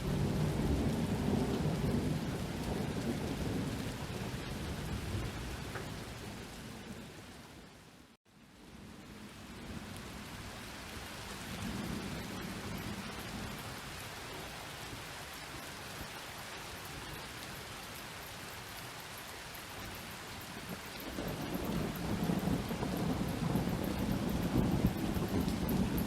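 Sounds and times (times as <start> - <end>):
distant thunder rumbling: 0.0 - 7.1, 20.6 - 26.0
steady rain falling: 0.0 - 26.0.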